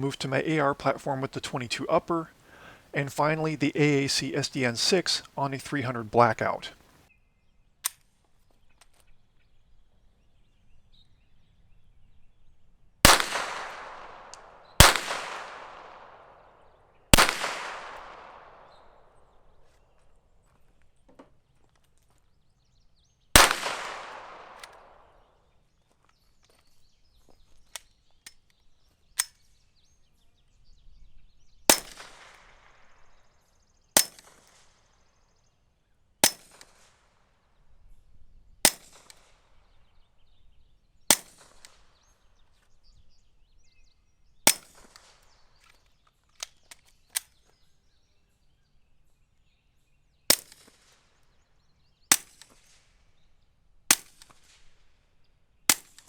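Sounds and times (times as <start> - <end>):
suppressed pistol shots: 13.1 - 16.2, 17.2 - 18.5, 23.4 - 25.0, 31.7 - 32.4.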